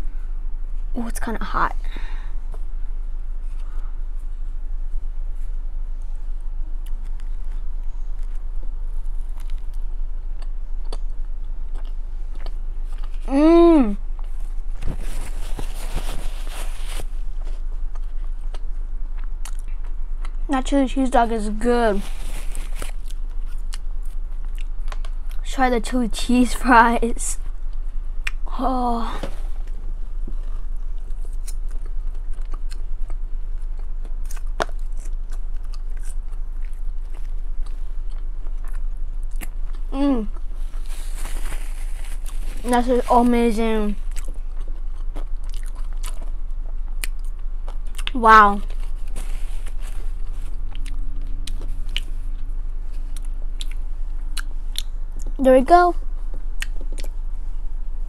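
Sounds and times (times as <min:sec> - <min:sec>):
steady low hum: 0:00.0 - 0:58.0
chewing with wet mouth clicks: 0:09.2 - 0:13.2, 0:17.9 - 0:20.4, 0:30.4 - 0:39.9, 0:44.1 - 0:48.2, 0:50.6 - 0:55.4, 0:56.3 - 0:57.2
close chewing with wet mouth clicks: 0:09.2 - 0:13.2, 0:17.9 - 0:20.4, 0:44.1 - 0:48.2
person humming mmm: 0:13.3 - 0:14.0
paper napkin rustling: 0:14.4 - 0:17.6, 0:21.8 - 0:23.0, 0:40.6 - 0:43.9, 0:48.6 - 0:50.6.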